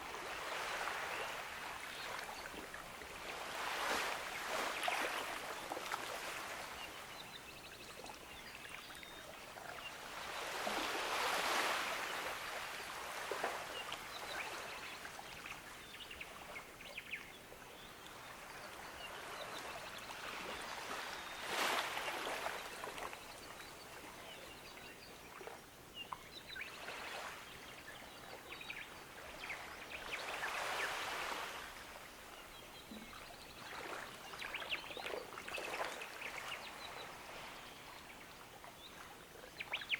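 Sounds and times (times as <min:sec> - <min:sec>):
ocean waves washing onto beach: 0:10.0 - 0:15.1.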